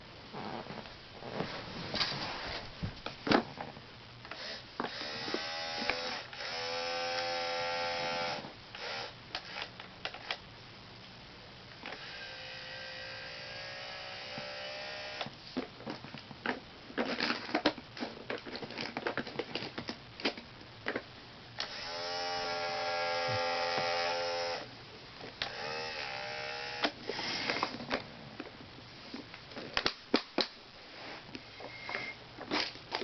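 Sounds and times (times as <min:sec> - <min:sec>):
toy truck motor whining: 0:11.9 - 0:15.3.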